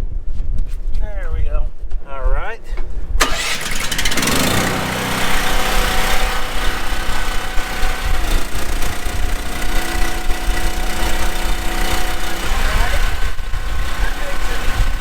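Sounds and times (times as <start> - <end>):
vehicle engine idling: 3.2 - 15.0.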